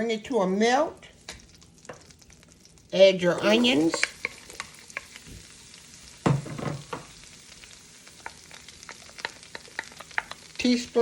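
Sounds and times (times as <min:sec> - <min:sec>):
onions sizzling in a pan: 0:00.0 - 0:11.0.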